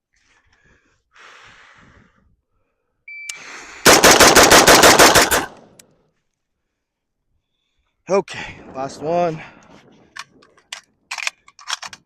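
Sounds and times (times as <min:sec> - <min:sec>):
rifle firing rapid shots: 0:03.9 - 0:05.6.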